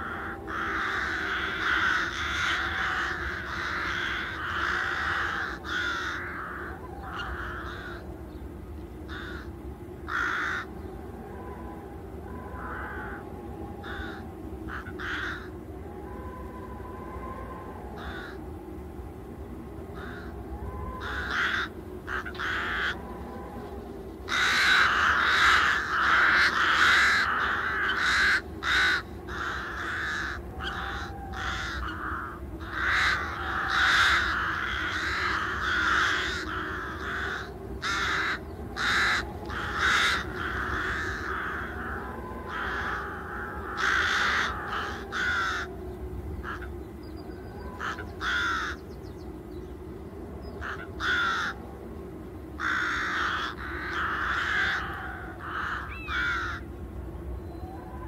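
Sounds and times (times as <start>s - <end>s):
birds giving harsh raspy calls: 0.0s - 10.9s, 12.4s - 13.2s, 13.8s - 15.6s, 17.8s - 18.4s, 19.9s - 49.3s, 50.4s - 51.6s, 52.5s - 56.8s
low steady hum: 0.0s - 58.0s.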